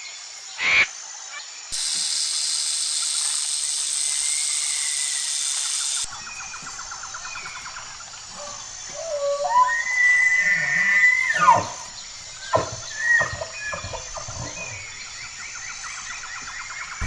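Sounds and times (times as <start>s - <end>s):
animal crying: 7.4s - 15.0s.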